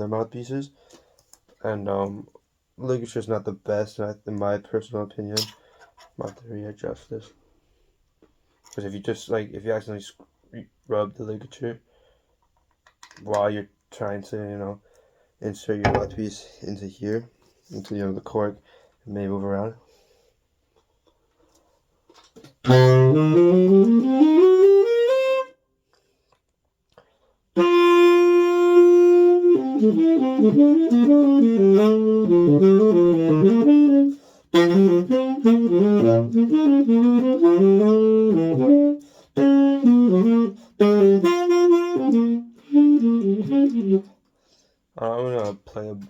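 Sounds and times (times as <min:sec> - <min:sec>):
tenor saxophone playing: 0:22.6 - 0:25.6, 0:27.6 - 0:44.1.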